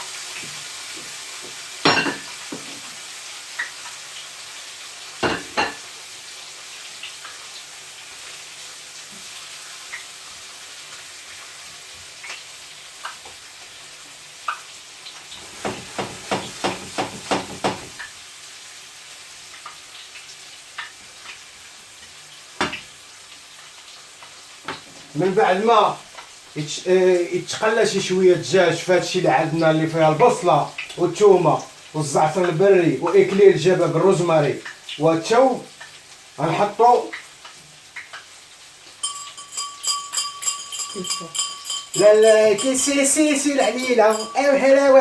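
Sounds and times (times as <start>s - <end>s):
chicken sizzling in a pan: 0.0s - 45.0s
utensil knocking against pan: 15.4s - 18.0s.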